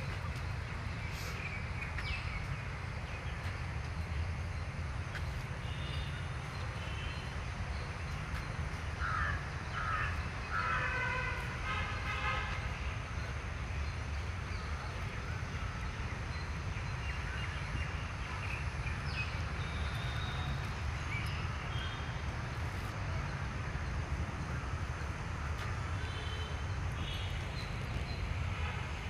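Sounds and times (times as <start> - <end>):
low rumble of wind or traffic: 0.0 - 29.0
crows cawing: 9.0 - 10.9.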